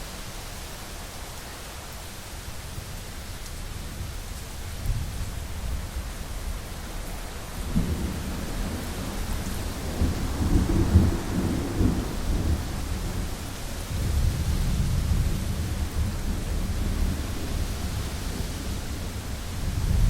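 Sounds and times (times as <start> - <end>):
rain on a window: 0.0 - 20.0
rolling thunder: 7.6 - 20.0.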